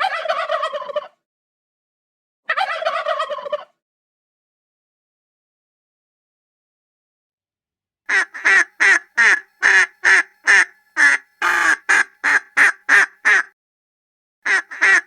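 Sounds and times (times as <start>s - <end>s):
duck quacking: 8.1s - 13.5s, 14.5s - 15.0s.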